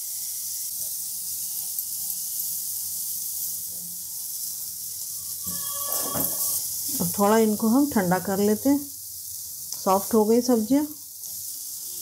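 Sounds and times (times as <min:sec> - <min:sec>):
vegetables sizzling in a pan: 0:00.0 - 0:12.0
spatula stirring: 0:05.3 - 0:06.6.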